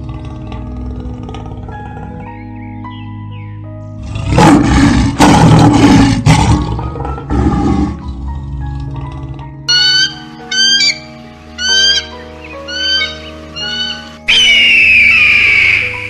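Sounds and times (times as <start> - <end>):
big cat roaring: 0.0 - 2.3, 4.0 - 9.6
gentle background music: 0.0 - 16.0.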